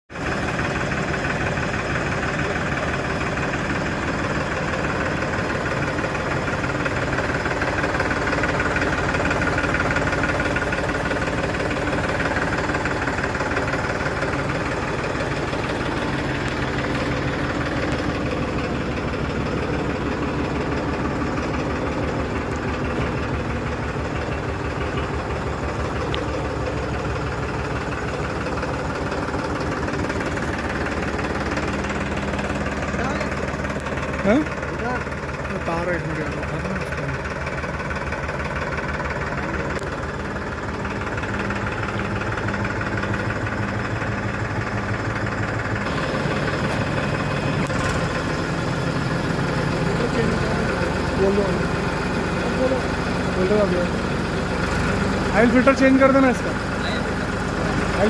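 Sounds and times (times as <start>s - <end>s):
tractor diesel engine idling: 0.1s - 58.0s.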